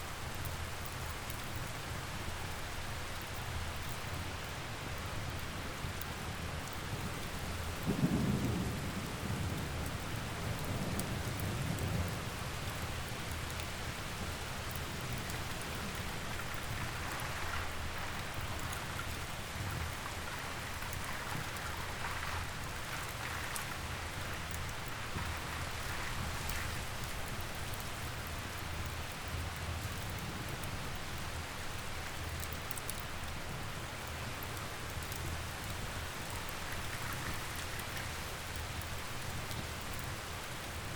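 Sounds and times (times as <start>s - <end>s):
steady rain: 0.0s - 40.9s
wood fire crackling: 0.0s - 40.9s
thunder rumbling: 7.8s - 12.4s.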